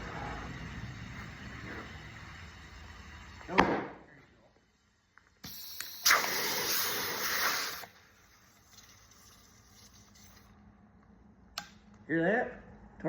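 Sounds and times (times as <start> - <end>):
compressed air hissing: 5.4 - 10.5.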